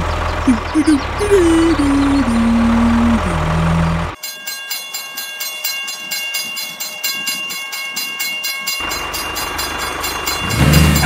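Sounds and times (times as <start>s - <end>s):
engine drone: 0.0s - 4.2s, 8.8s - 11.0s
level-crossing warning bell ringing: 0.0s - 11.0s.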